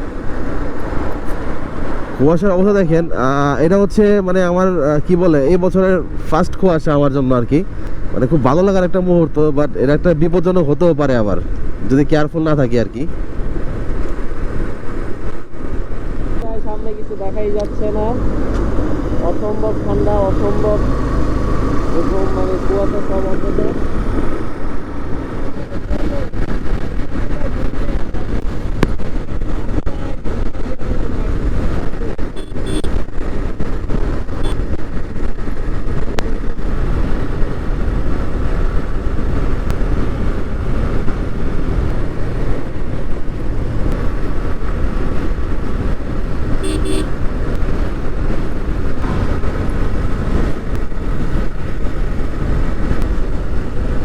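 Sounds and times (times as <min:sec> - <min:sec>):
wind rumble on microphone: 0:00.0 - 0:54.0
motorcycle engine running: 0:16.8 - 0:26.2, 0:37.4 - 0:54.0
vehicle horns tooting: 0:32.4 - 0:33.0, 0:34.4 - 0:34.6, 0:46.6 - 0:47.2.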